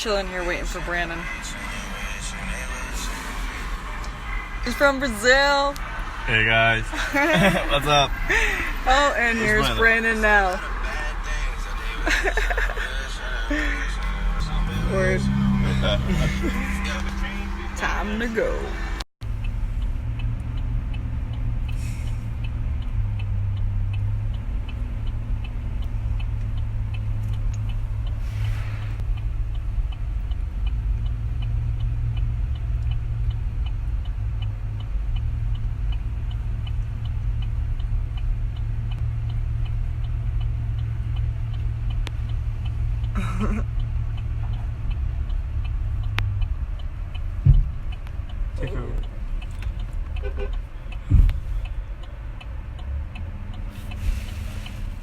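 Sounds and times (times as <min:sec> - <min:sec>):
truck engine droning: 0:00.0 - 0:55.0
light regular ticking: 0:19.2 - 0:28.3, 0:29.0 - 0:55.0.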